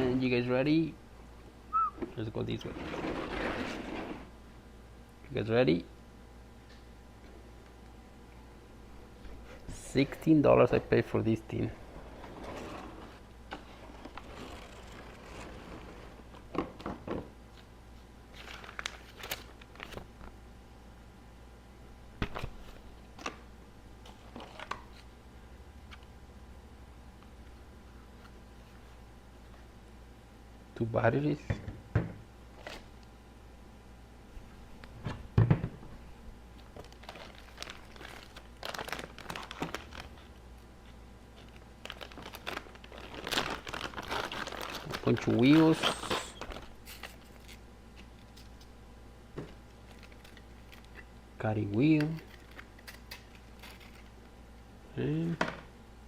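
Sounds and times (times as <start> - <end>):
plastic packaging crinkling: 18.3 - 20.1, 36.7 - 40.4, 41.3 - 48.7, 49.8 - 51.0.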